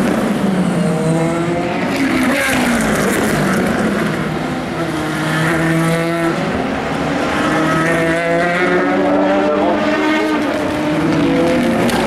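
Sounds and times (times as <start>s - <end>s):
race car engines passing: 0.0s - 12.0s.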